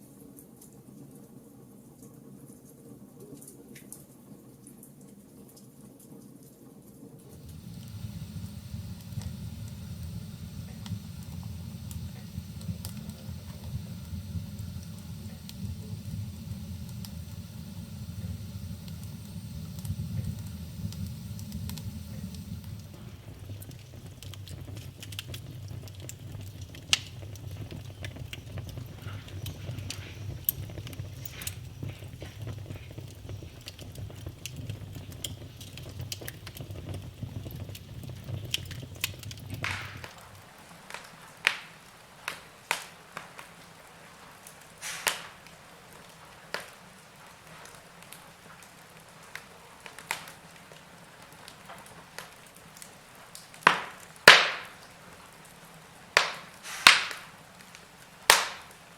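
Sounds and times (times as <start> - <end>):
wood fire crackling and popping: 7.2 - 58.9
low rumble: 7.3 - 40.3.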